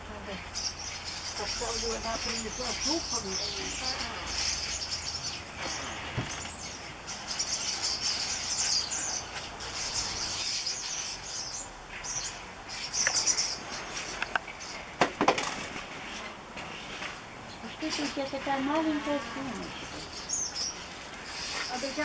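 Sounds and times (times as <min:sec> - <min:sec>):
flock of birds chattering: 0:00.0 - 0:22.0.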